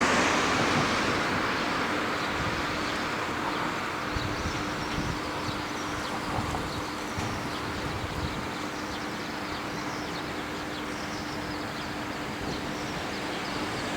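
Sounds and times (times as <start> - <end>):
electric train rushing: 0.0 - 3.7.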